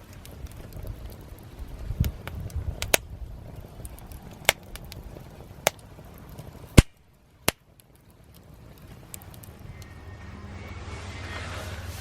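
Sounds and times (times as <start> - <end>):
wood fire popping and cracking: 0.0 - 10.8
low rumble: 8.2 - 12.0.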